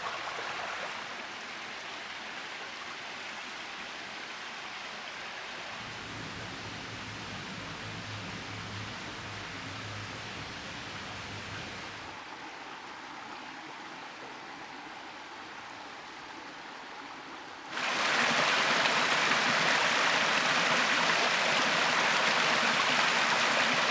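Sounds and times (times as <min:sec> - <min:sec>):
close-up running water rush: 0:00.0 - 0:23.9
stream running over rocks: 0:00.0 - 0:23.9.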